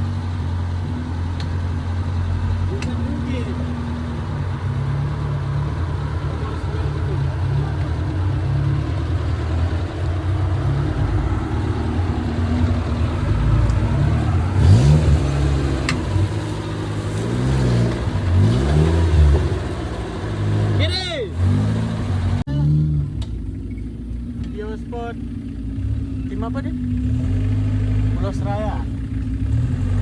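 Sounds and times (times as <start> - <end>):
vehicle engine revving: 0.0 - 30.0.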